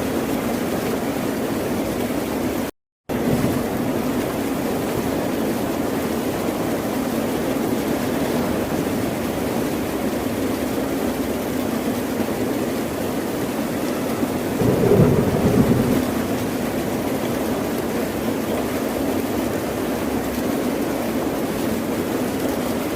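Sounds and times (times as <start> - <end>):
ocean surf washing: 14.6 - 17.6.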